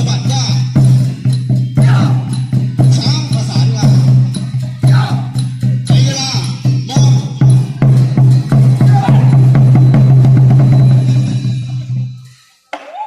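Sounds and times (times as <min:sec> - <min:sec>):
quick percussion strokes: 0:00.0 - 0:12.7
voices: 0:08.7 - 0:09.9.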